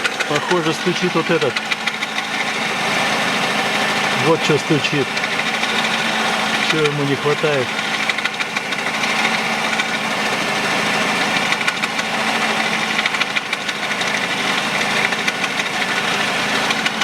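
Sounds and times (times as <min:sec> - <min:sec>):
car engine running: 0:00.0 - 0:17.0
rapid knocking from drive belt: 0:00.0 - 0:17.0.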